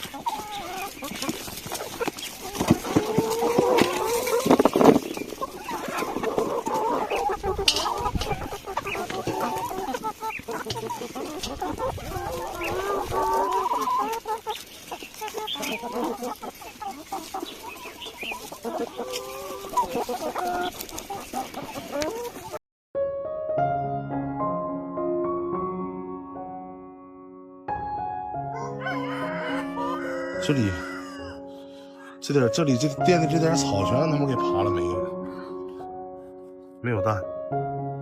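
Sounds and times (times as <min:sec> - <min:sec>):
chickens clucking: 0:00.0 - 0:22.6, 0:28.6 - 0:36.4.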